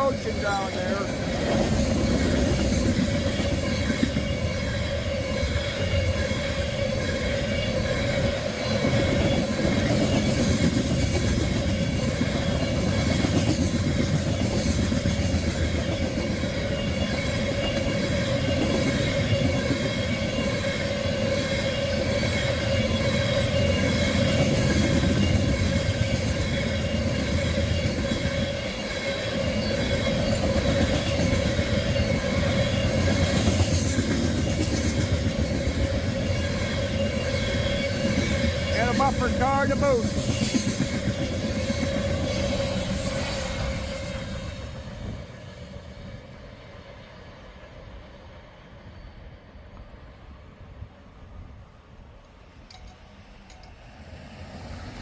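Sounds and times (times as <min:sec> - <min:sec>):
steel wheels rumbling on rail: 0:00.0 - 0:51.6.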